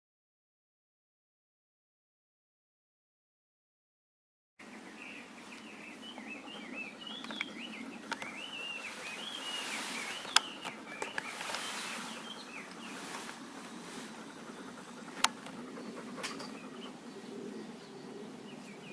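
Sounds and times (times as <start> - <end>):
bird chirping and warbling: 4.6 - 18.9
outdoor hiss: 8.2 - 16.6.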